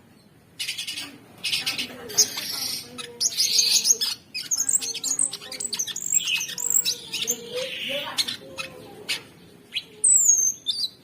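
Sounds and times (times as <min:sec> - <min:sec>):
songbird singing rapid chirps: 0:00.0 - 0:11.0.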